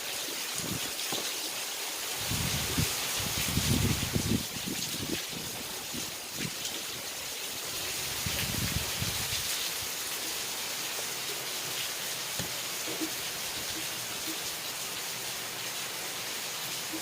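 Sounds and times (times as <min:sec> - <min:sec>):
steady rain falling: 0:00.0 - 0:17.0
low wind gusts: 0:02.0 - 0:10.2.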